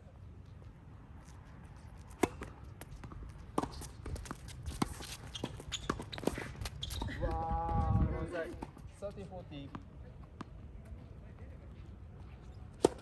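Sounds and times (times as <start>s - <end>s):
wind buffeting microphone: 6.5s - 8.6s
tennis ball hits: 12.8s - 13.0s.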